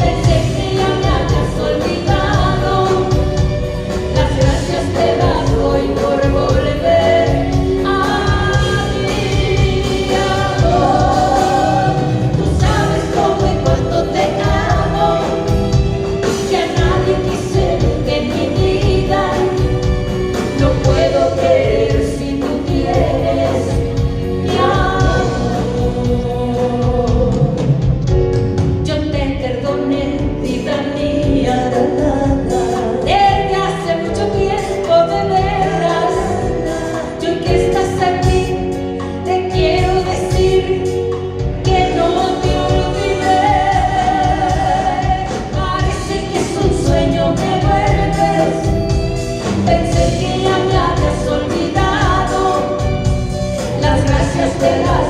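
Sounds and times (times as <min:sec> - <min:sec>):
live band music: 0:00.0 - 0:55.0.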